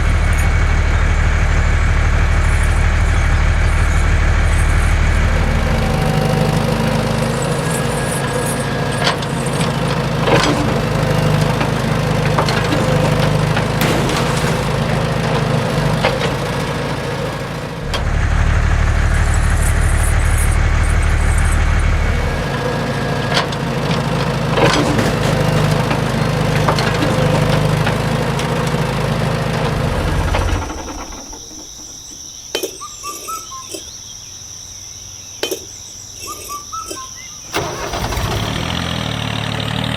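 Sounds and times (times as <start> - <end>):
small engine humming: 0.0 - 32.1, 37.5 - 39.9
knocks: 9.0 - 18.1.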